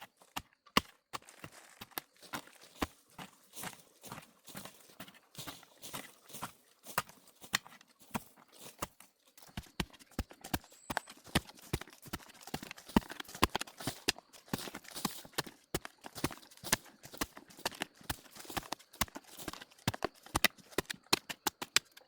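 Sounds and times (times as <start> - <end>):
sharp knocks and clicks: 17.2 - 22.0.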